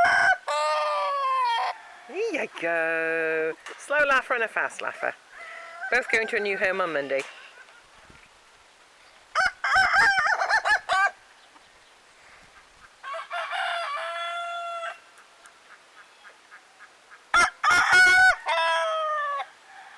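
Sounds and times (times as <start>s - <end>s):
roosters crowing: 0.0s - 2.4s, 5.2s - 7.9s, 9.3s - 11.3s, 12.8s - 15.2s, 17.3s - 19.9s.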